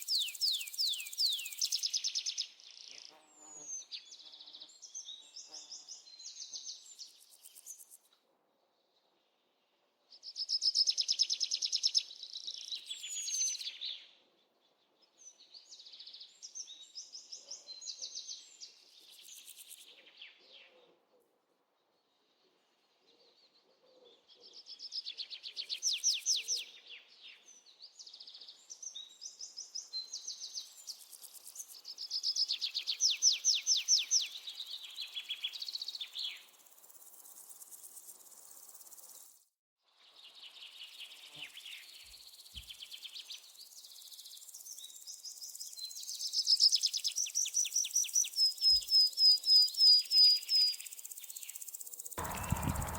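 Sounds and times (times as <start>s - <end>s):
birds trilling and chirping: 52.2s - 52.9s.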